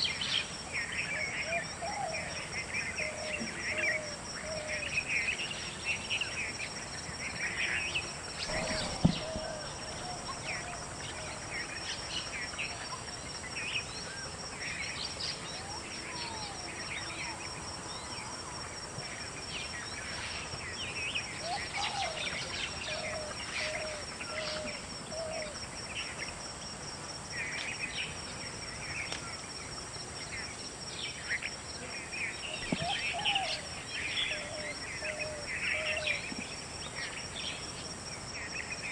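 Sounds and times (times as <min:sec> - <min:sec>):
pulsing insect trill: 0:00.0 - 0:38.9
birds chirping: 0:01.1 - 0:13.9.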